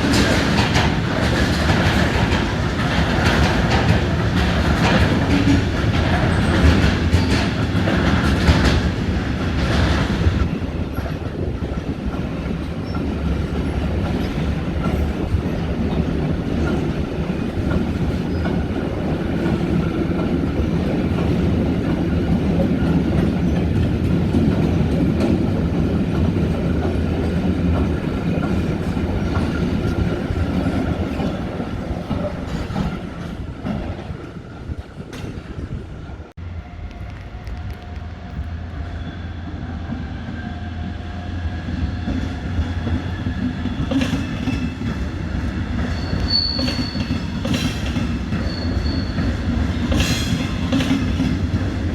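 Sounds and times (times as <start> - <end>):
train wheels clacking over rails: 0.0 - 38.4, 39.4 - 51.9.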